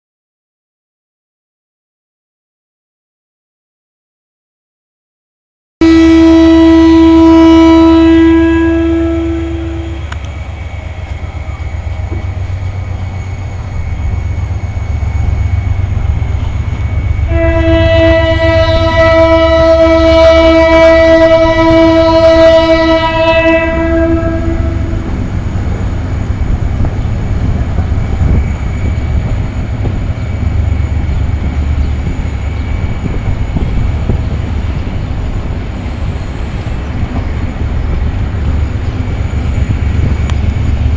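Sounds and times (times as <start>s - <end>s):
locomotive horn blasts: 5.8s - 10.2s, 17.2s - 25.1s
locomotive and train rumbling: 5.8s - 40.9s.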